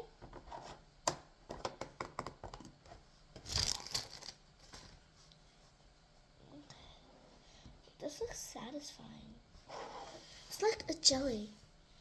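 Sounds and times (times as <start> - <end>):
wrapping tearing rustle: 3.5 - 4.9.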